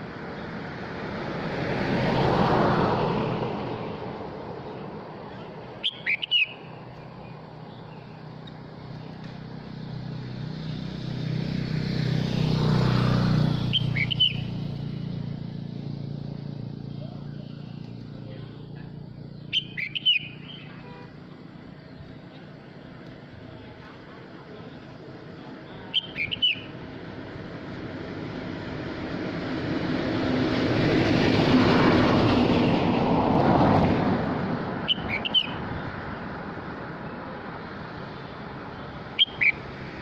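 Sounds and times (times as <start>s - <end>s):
bird chirping phrases: 5.3s - 8.2s, 13.7s - 14.6s, 16.9s - 22.8s, 24.6s - 26.8s, 34.9s - 35.6s, 38.7s - 39.7s.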